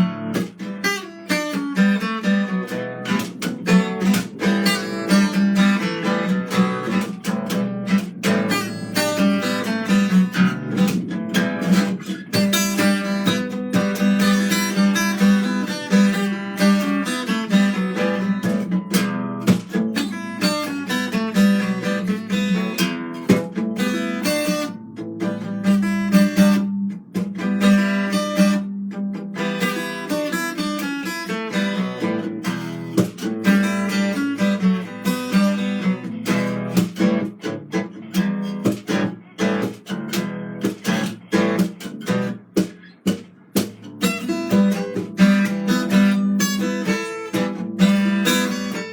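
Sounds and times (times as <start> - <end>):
acoustic guitar: 0.0 - 48.9.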